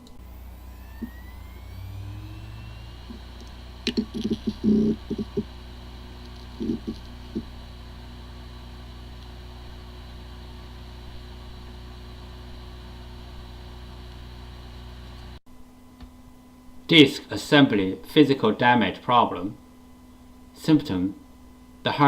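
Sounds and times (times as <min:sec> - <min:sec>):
hard disk drive humming: 0:00.0 - 0:16.8.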